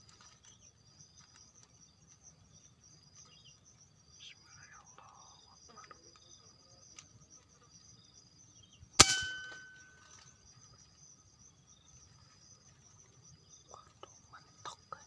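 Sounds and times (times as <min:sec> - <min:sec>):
insect trilling: 0:00.0 - 0:15.0
sharp metallic clang: 0:09.0 - 0:10.2.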